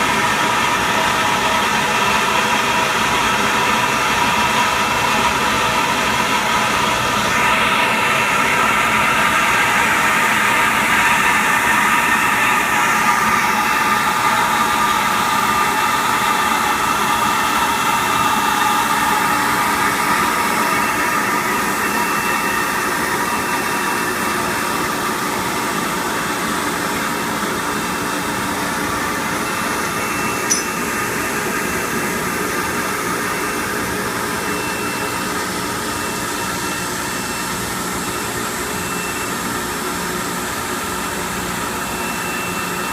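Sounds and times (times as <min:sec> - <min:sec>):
sharp click: 0:30.5 - 0:30.8.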